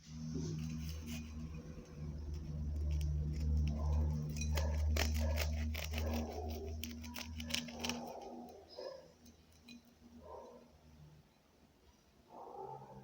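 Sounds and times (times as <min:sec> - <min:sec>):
steady low hum: 0:00.0 - 0:11.4
utensils clinking against bowl: 0:02.8 - 0:08.4.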